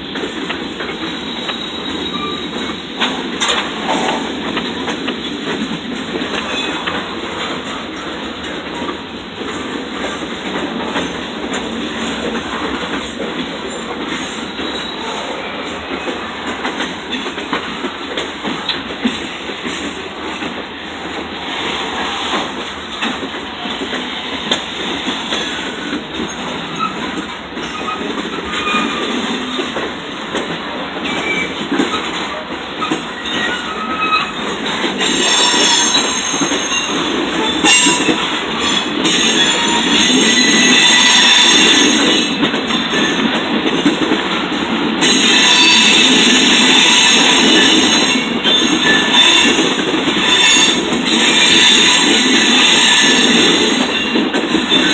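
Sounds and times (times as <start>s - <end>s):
train wheels clattering on rails: 0.0s - 54.9s
high-pitched wheel squeal: 1.2s - 2.7s, 35.1s - 42.3s, 45.0s - 49.6s, 50.2s - 53.4s.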